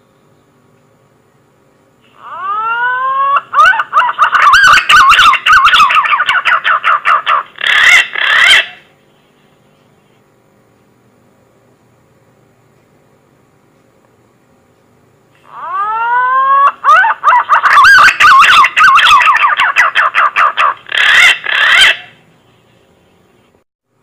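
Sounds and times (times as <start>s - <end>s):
pigeon whistled song: 2.3s - 7.0s, 15.7s - 22.1s.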